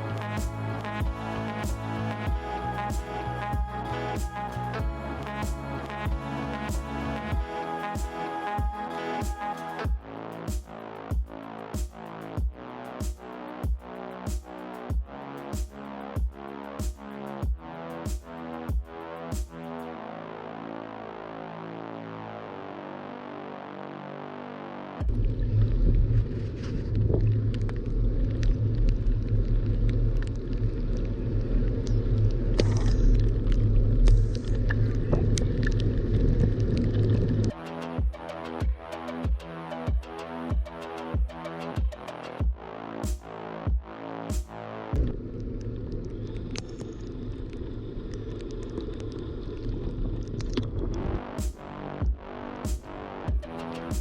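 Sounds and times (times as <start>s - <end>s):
background music: 0.0s - 21.3s, 37.5s - 45.0s, 51.4s - 54.0s.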